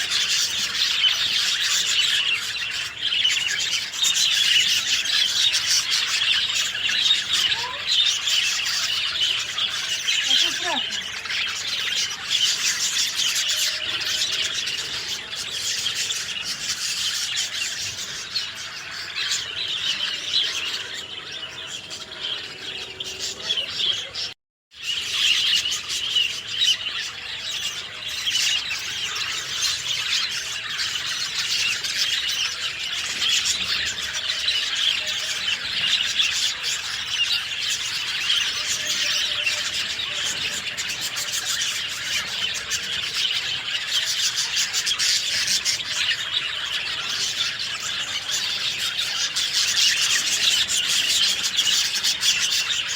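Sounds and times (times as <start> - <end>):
songbirds chirping: 0.0 - 52.9.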